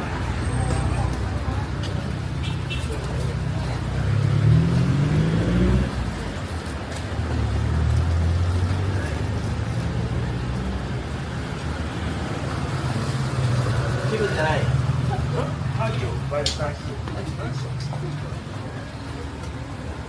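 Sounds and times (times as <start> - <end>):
vehicle engine pulling away: 3.4 - 6.5, 7.1 - 11.1.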